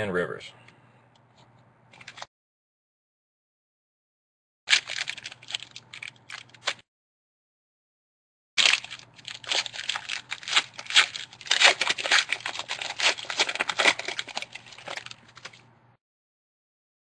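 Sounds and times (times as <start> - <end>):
foil wrapper tearing and crinkling: 4.7 - 6.8, 8.6 - 15.6.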